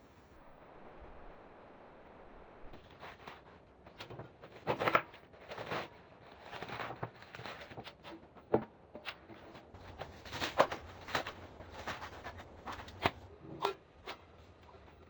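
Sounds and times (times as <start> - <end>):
faint low rumble: 0.0 - 4.6, 9.4 - 15.0.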